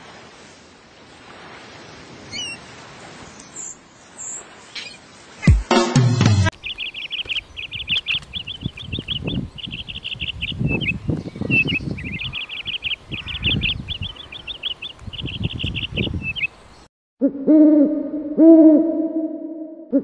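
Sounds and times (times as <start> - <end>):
owl hooting: 17.2 - 20.0.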